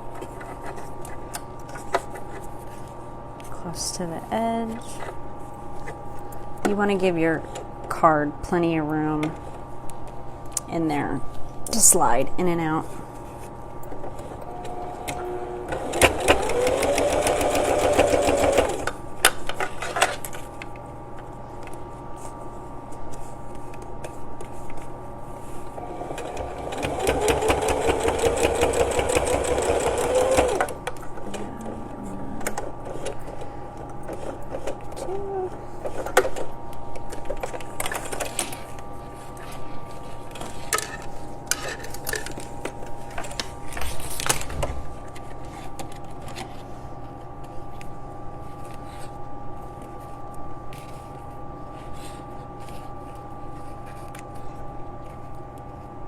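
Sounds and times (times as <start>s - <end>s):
sewing machine stitching: 14.2s - 19.0s, 25.7s - 30.8s.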